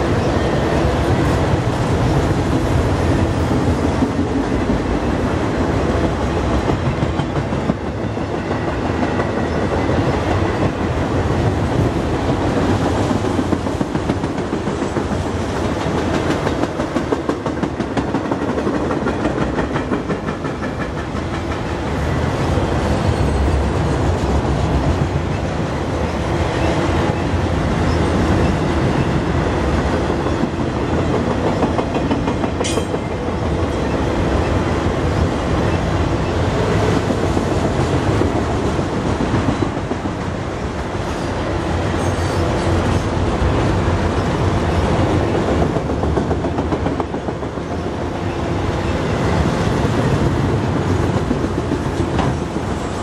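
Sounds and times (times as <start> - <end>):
wheels clickety-clack: 0.0 - 5.2, 6.0 - 25.4, 28.3 - 34.6, 45.0 - 48.0, 49.3 - 53.0
train wheels rumbling on rails: 0.0 - 53.0.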